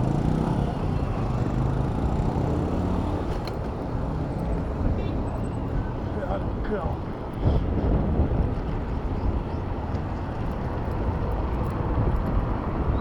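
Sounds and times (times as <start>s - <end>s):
motor traffic: 0.0s - 13.0s
wind on microphone: 7.2s - 13.0s.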